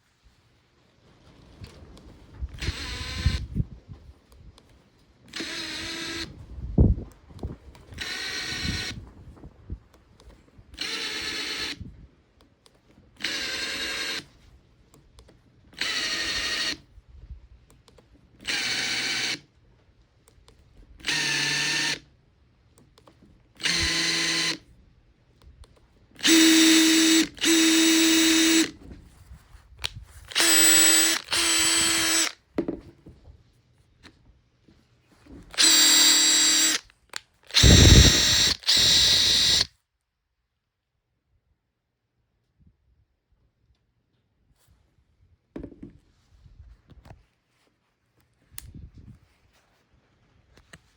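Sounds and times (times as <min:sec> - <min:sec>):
impact driver running: 0:02.5 - 0:03.6, 0:05.3 - 0:06.4, 0:07.4 - 0:09.0, 0:10.8 - 0:11.9, 0:13.2 - 0:14.3, 0:15.7 - 0:16.9, 0:18.4 - 0:19.5, 0:20.8 - 0:22.1, 0:23.6 - 0:24.7, 0:26.2 - 0:28.8, 0:29.8 - 0:32.7, 0:35.5 - 0:39.7.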